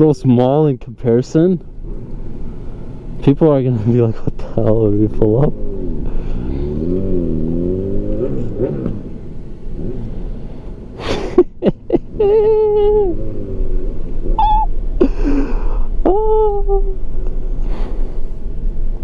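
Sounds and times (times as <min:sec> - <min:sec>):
road rumble: 0:00.0 - 0:19.0
pickup engine revving: 0:01.7 - 0:16.3
hooting tone: 0:12.5 - 0:14.8.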